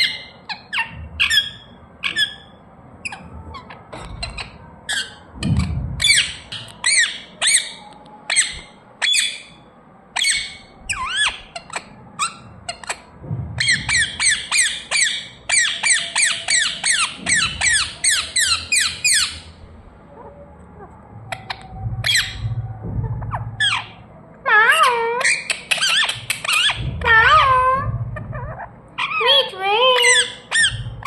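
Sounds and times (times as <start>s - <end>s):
parrot squawking: 23.2s - 31.0s.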